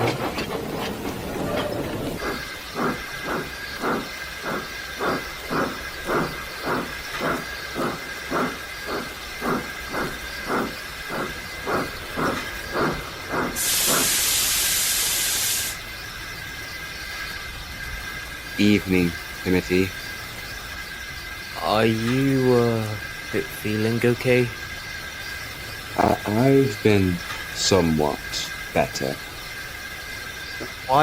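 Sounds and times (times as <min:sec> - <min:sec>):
steam hissing: 0:00.0 - 0:16.0
steam locomotive chuffing: 0:00.0 - 0:17.3, 0:18.1 - 0:31.0.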